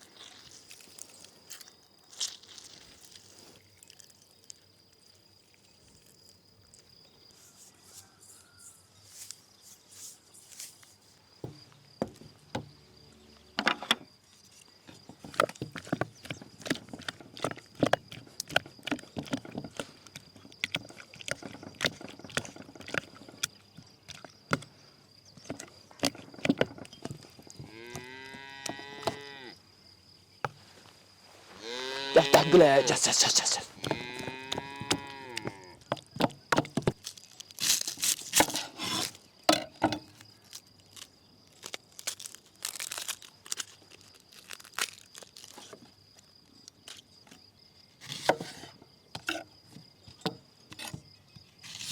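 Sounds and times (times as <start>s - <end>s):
cow mooing: 31.6s - 32.5s.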